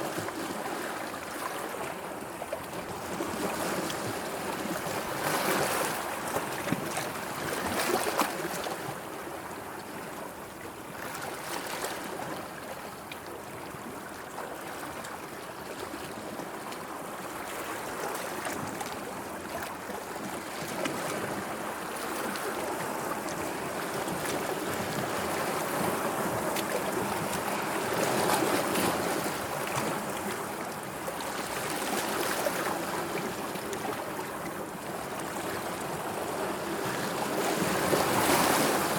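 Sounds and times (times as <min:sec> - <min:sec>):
sea waves splashing: 0:35.8 - 0:38.9.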